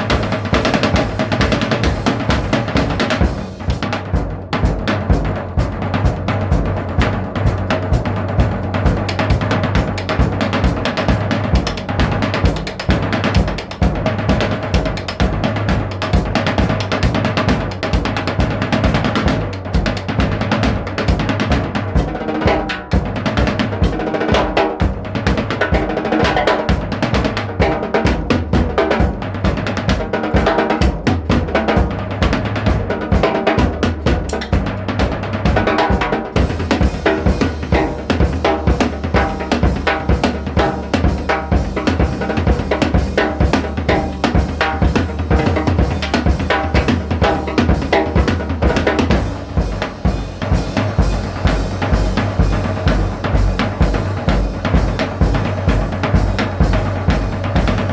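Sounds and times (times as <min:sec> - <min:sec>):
drum kit playing a beat: 0:00.0 - 0:57.9
bass line: 0:30.8 - 0:57.9.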